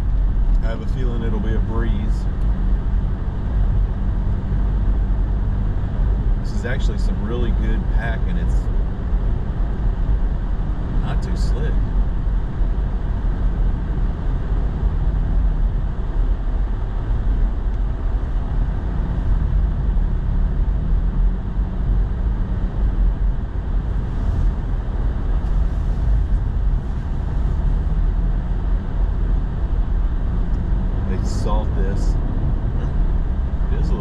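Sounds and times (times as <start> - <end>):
truck engine and tyre rumble: 0.0 - 34.0.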